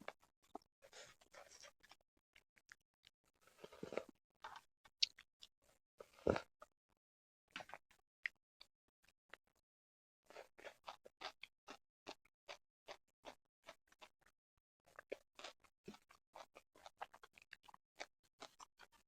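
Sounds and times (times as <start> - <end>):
chewing and mouth sounds: 0.0 - 2.8, 3.4 - 6.7, 10.2 - 19.0.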